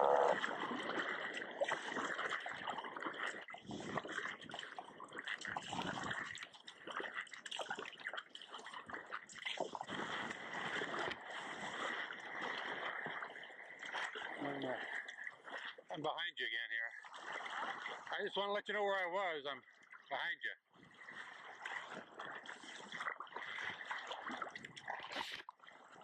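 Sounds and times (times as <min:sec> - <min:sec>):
water splashing around kayak: 0:00.0 - 0:26.0.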